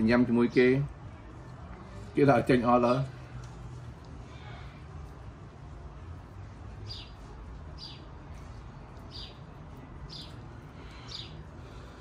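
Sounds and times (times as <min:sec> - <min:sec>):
small bird chirping: 0:06.8 - 0:08.1, 0:09.0 - 0:09.5, 0:10.1 - 0:11.4.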